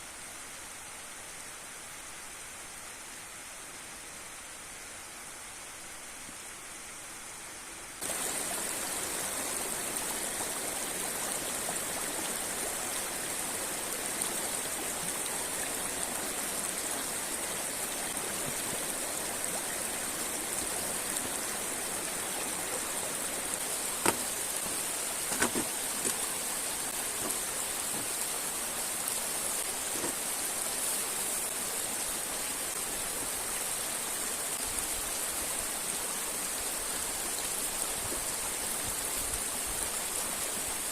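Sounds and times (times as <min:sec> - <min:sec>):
river water rushing: 0:08.0 - 0:40.9.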